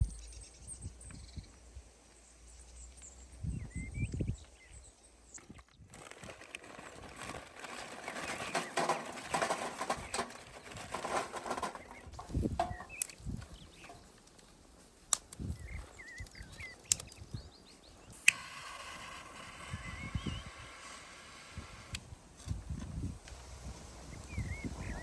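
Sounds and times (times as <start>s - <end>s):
small birds chirping: 0.0s - 25.0s
busy rustling and flapping: 5.4s - 25.0s.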